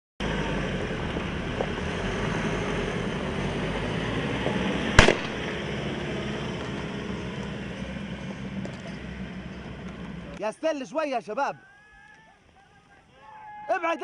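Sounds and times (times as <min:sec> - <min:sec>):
vehicle engine running: 0:00.2 - 0:10.5
sharp bang: 0:05.0 - 0:05.6.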